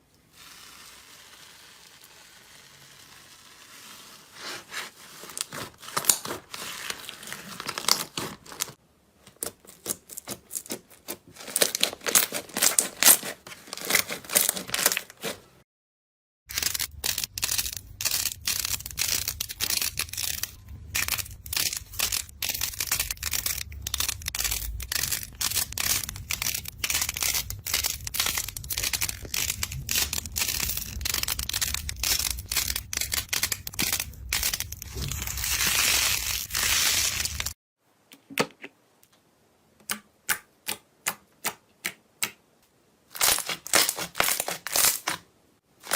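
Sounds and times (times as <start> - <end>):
slime crackling and popping: 16.5 - 37.5
low hum: 16.5 - 37.6.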